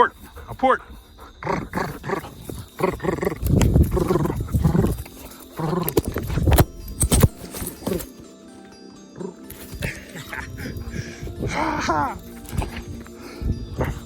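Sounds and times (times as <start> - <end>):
wind buffeting microphone: 0.0 - 5.3, 9.8 - 14.0.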